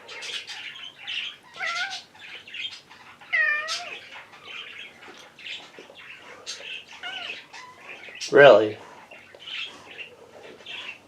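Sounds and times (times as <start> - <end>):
cat meowing: 1.5 - 2.1, 3.3 - 4.0, 7.0 - 7.5.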